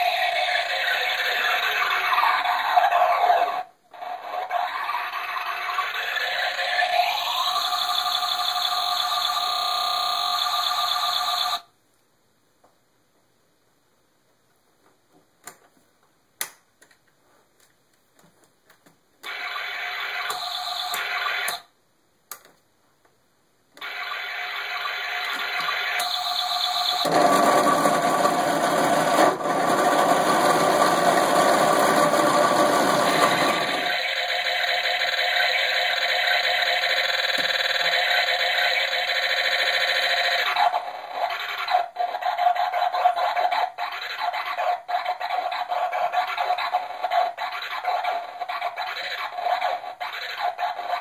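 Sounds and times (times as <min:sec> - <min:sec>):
dense electronic noise with tones: 0:00.0 - 0:11.8, 0:19.2 - 0:21.8, 0:23.8 - 0:51.0.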